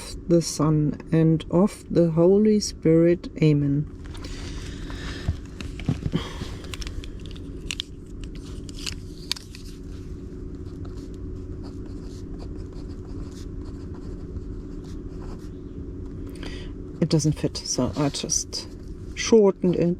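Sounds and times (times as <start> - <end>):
steady low hum: 0.0 - 19.9
card being handled: 4.0 - 11.2
pen scratching on paper: 10.6 - 15.6.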